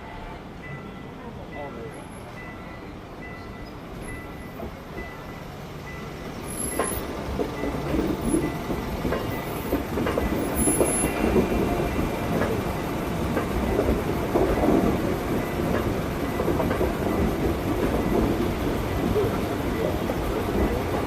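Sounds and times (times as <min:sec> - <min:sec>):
train wheels clattering over rails: 0:06.0 - 0:21.0.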